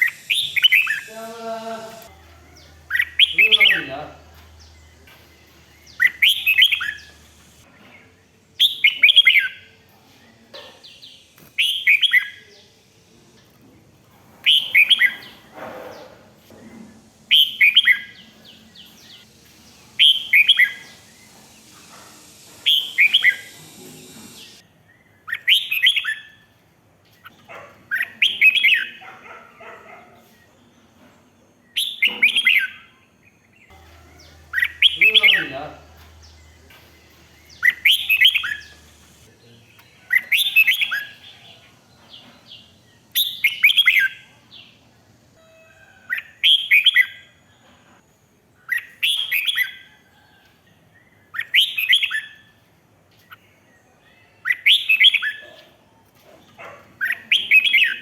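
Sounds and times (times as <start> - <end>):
bulbul singing whistled phrases: 0.0 - 7.6, 19.9 - 21.4, 22.4 - 24.6, 33.8 - 39.3.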